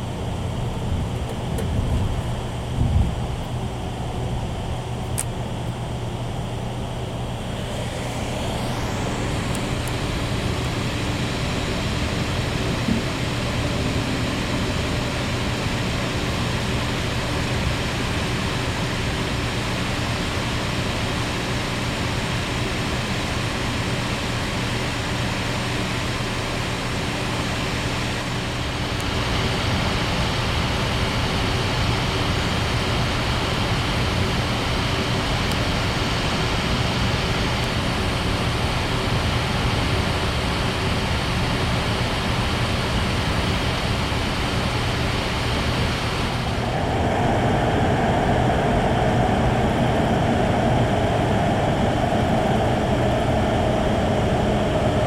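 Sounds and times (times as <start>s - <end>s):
low hum: 0.0s - 19.7s, 44.4s - 55.0s.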